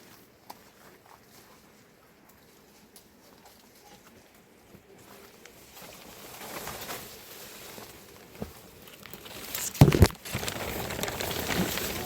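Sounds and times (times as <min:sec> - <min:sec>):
loud thumps: 0:09.8 - 0:10.2.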